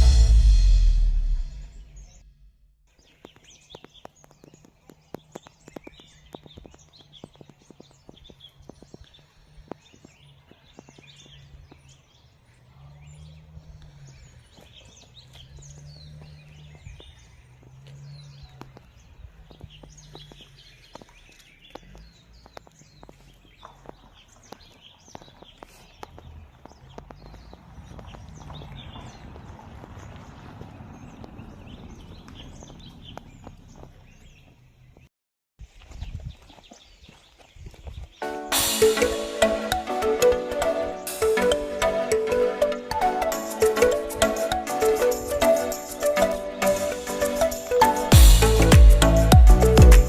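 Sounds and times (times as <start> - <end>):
low hum: 0.0 - 2.7
small birds chirping: 2.9 - 50.0.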